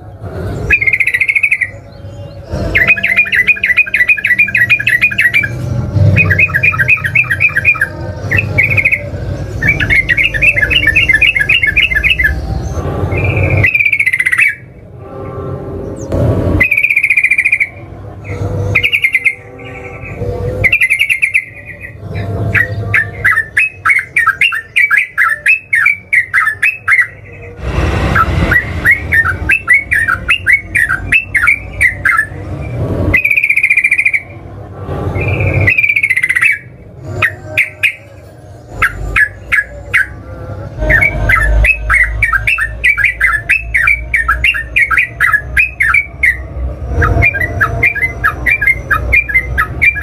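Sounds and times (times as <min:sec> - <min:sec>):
bird whistled phrases: 0:00.7 - 0:01.9, 0:02.7 - 0:05.6, 0:06.2 - 0:12.4, 0:13.1 - 0:14.7, 0:16.6 - 0:17.8, 0:18.7 - 0:19.4, 0:20.6 - 0:27.2, 0:28.5 - 0:32.4, 0:33.2 - 0:34.3, 0:35.2 - 0:38.1, 0:38.8 - 0:40.2, 0:47.0 - 0:50.0.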